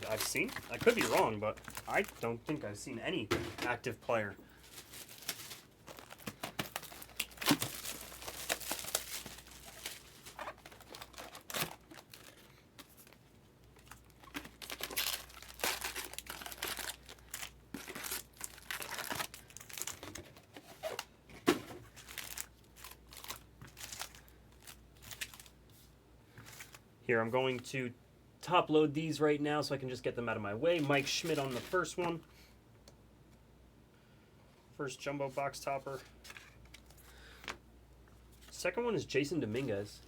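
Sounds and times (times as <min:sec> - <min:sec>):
card pack wrappers crinkling: 0:00.0 - 0:21.0, 0:21.8 - 0:25.6, 0:30.7 - 0:32.2.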